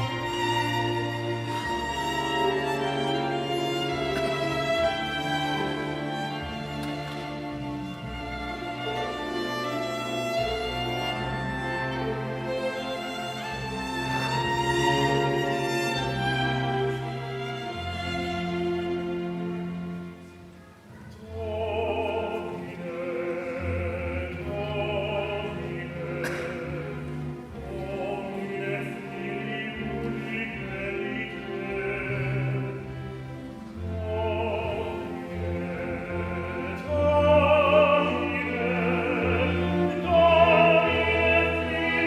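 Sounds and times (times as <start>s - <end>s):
chamber orchestra strings: 0.0s - 42.0s.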